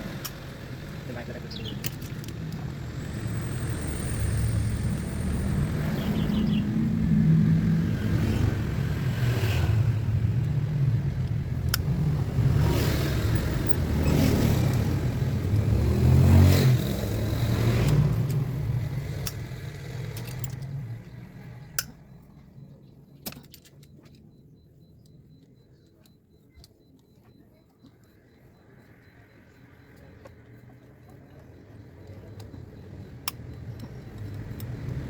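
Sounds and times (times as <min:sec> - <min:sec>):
car engine rumbling: 0:00.0 - 0:27.0, 0:28.2 - 0:35.0
sharp clicks: 0:16.5 - 0:35.0.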